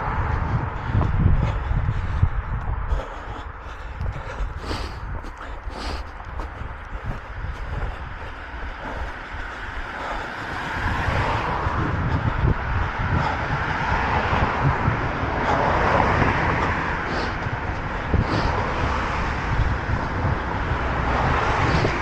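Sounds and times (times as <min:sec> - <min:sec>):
road traffic passing: 0:00.0 - 0:22.0
wind rumbling on microphone: 0:00.0 - 0:22.0.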